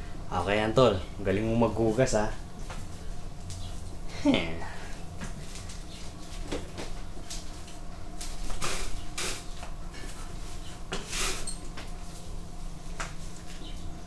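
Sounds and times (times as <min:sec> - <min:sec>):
broom sweeping tiled floor: 0:04.9 - 0:13.7.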